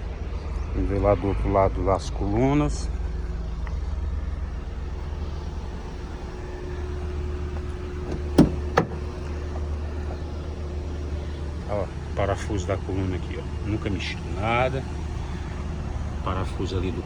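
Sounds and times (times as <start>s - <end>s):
steady low hum: 3.8s - 17.0s
door latch clicks: 7.6s - 9.1s.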